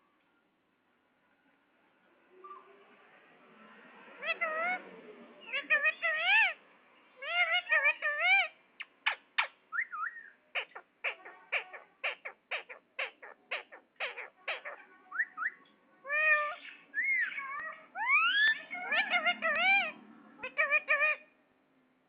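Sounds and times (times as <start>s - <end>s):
parakeet squawking: 4.2s - 4.8s, 5.4s - 6.6s, 7.2s - 21.4s
parakeet warbling speech-like phrases: 5.5s - 6.6s, 7.2s - 8.6s, 10.6s - 21.3s.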